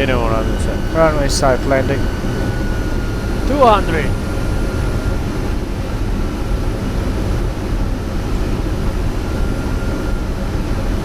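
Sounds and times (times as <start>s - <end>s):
aircraft air rush and engine noise: 0.0s - 4.7s
faint steady whine: 0.0s - 5.3s.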